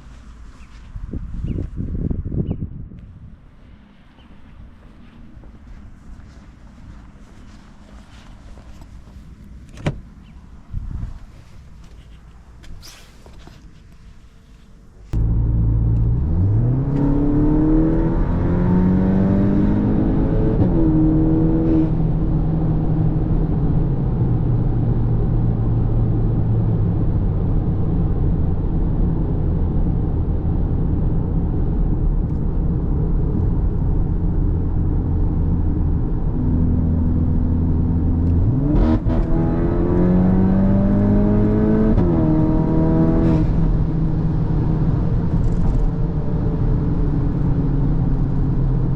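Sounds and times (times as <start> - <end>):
car engine accelerating: 15.1 - 48.9.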